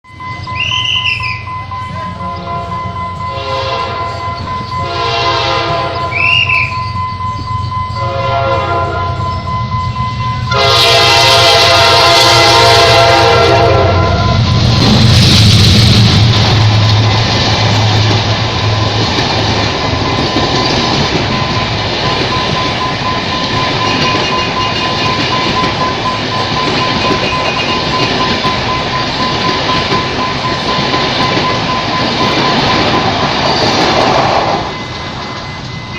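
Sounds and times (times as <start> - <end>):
train wheels rushing on rails: 0.0 - 35.9.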